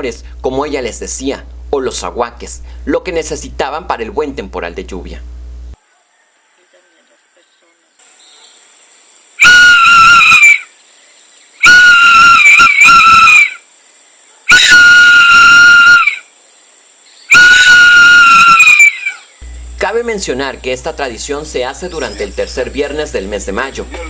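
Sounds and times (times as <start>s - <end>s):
long whistle blasts: 9.4s - 10.7s, 11.6s - 13.6s, 14.5s - 16.2s, 17.3s - 19.7s.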